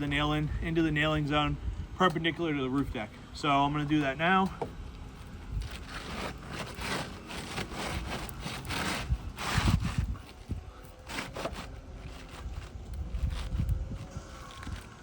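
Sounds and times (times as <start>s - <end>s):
scraping and rustling of shingle: 4.0s - 15.0s.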